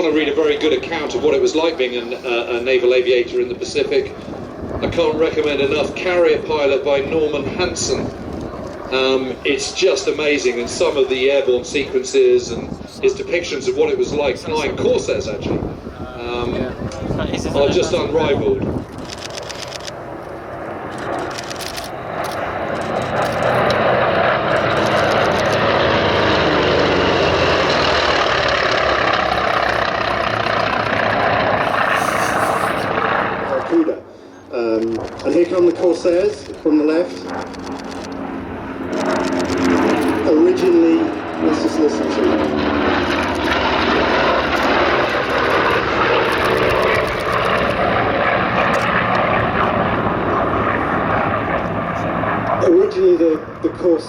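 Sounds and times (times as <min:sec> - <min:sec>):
radial piston aircraft engines: 0:00.0 - 0:54.0.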